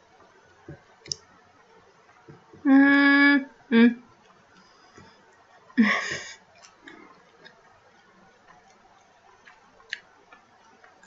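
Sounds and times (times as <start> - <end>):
chewing food: 6.4 - 11.0.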